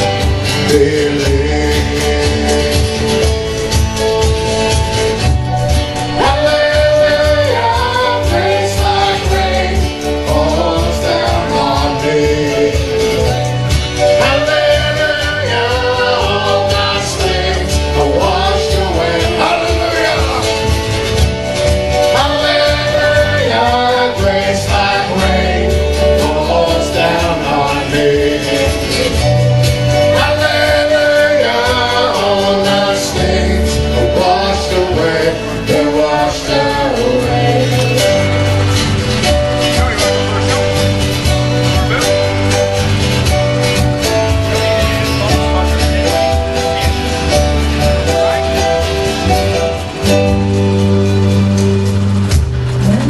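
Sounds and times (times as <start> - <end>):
person singing: 0.0 - 3.6, 5.9 - 20.7, 22.0 - 42.4
live band playing worship song: 0.0 - 53.0.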